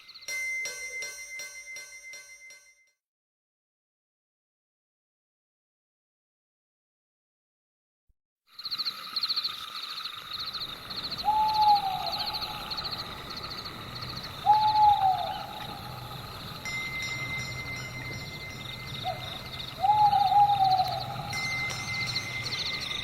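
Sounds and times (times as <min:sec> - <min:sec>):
rapidly pulsing high chirping: 0:08.5 - 0:23.0
owl hooting: 0:10.4 - 0:16.6, 0:18.9 - 0:21.7.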